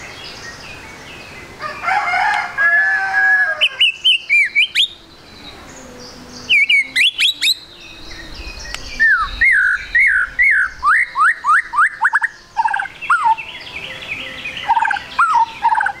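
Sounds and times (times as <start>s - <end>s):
songbird whistling and trilling: 3.6s - 16.0s.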